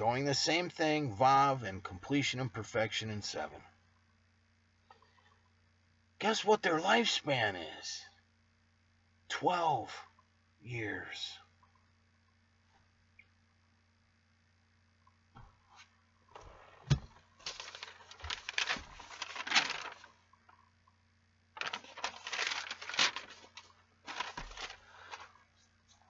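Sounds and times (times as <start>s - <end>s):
faint steady hum: 0.0s - 26.0s
rustling and crinkling handling: 15.4s - 20.6s, 21.5s - 26.0s.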